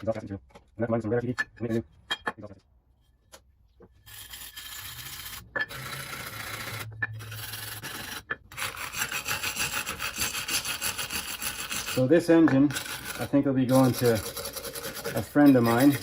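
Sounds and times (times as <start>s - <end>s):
scraping metal surface: 4.0s - 16.0s.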